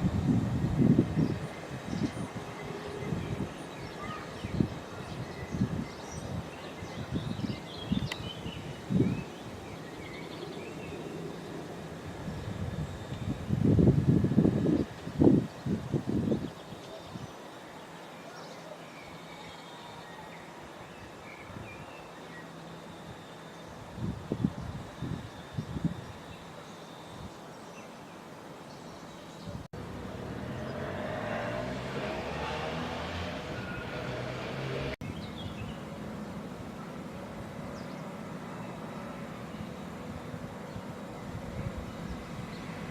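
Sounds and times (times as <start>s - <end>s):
wind buffeting microphone: 0.0s - 17.4s, 20.9s - 22.0s, 23.7s - 26.5s, 29.4s - 42.9s
faint bird chirps: 1.3s - 11.5s.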